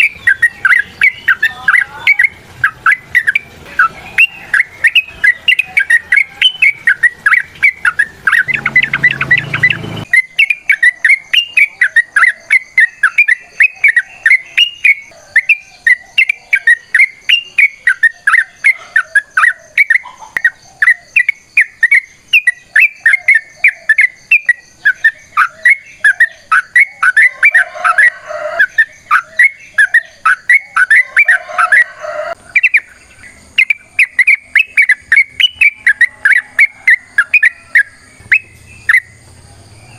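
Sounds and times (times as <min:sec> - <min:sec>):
bird chirping rapidly: 0:00.0 - 0:39.9
brief rumbling noise: 0:08.5 - 0:10.1.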